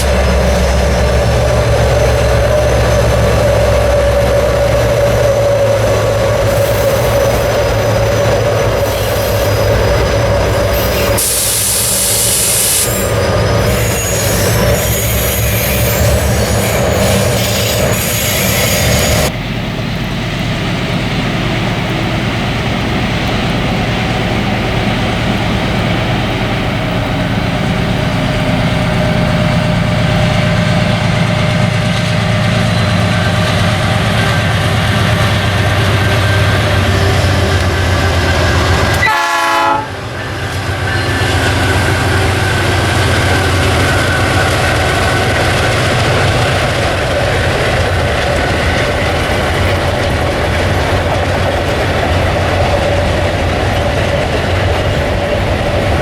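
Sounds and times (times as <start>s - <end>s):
high-pitched wheel squeal: 0.0s - 19.3s
train wagons rumbling on rails: 0.0s - 56.0s.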